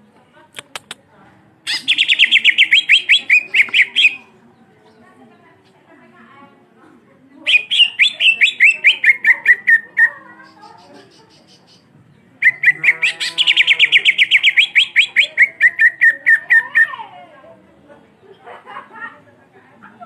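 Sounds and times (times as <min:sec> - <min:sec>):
bird singing rolling song: 0:01.7 - 0:05.8, 0:07.4 - 0:16.9.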